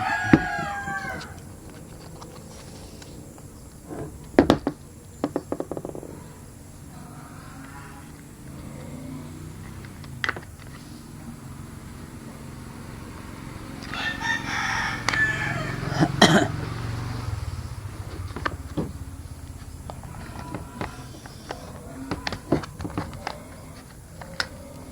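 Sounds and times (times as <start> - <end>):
rooster crowing: 0.0 - 3.3, 6.1 - 9.9, 12.2 - 24.9
sharp clicks and knocks: 17.8 - 24.8.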